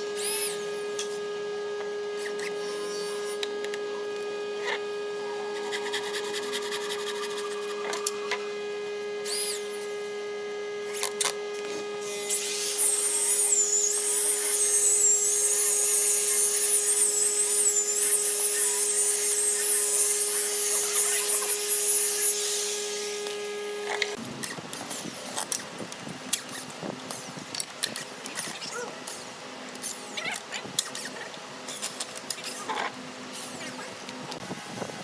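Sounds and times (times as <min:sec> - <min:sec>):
power tool whining: 0:00.0 - 0:25.6.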